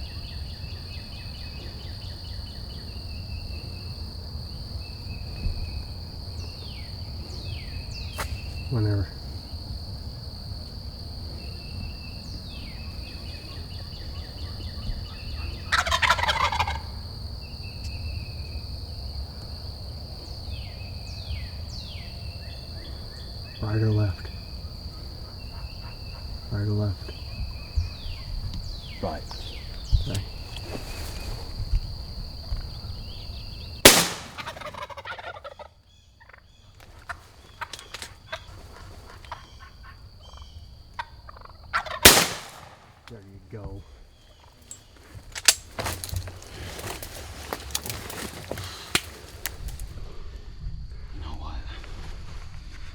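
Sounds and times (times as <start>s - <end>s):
turkey gobbling: 15.5s - 16.9s, 33.9s - 35.7s, 37.1s - 42.7s
shotgun shot echoing: 33.9s - 34.9s, 42.0s - 43.1s
faint clicks and rustles: 44.6s - 49.9s.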